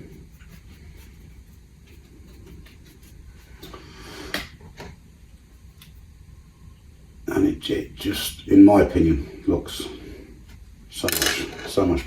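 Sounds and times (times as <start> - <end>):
paintbrush scratching and dabbing: 0.0 - 4.0, 5.4 - 6.3.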